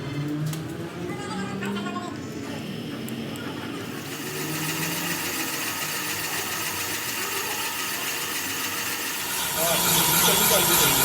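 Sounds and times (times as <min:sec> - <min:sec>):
machine running with hiss: 0:03.9 - 0:11.0.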